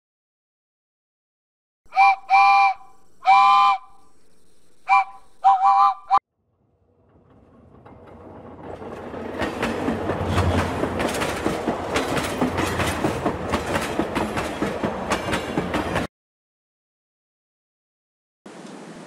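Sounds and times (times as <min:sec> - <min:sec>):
train low rumble: 0:06.5 - 0:16.1
train wheels clicking over joints: 0:07.1 - 0:16.1.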